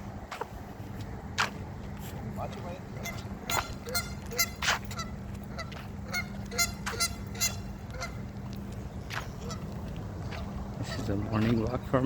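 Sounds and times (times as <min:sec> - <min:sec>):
geese honking: 0:02.9 - 0:11.7.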